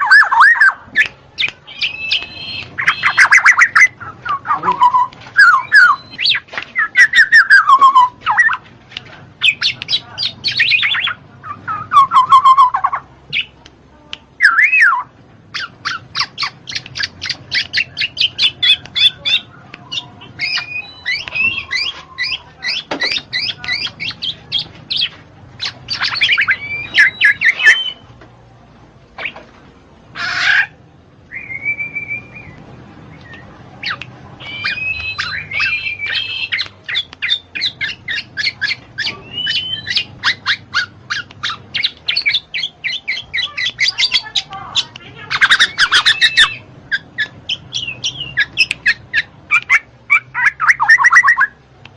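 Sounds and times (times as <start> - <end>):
harsh bird call: 0.0 - 8.6, 14.4 - 28.0, 33.8 - 51.6
held bird whistle: 0.0 - 8.6, 15.9 - 24.4, 31.3 - 44.2.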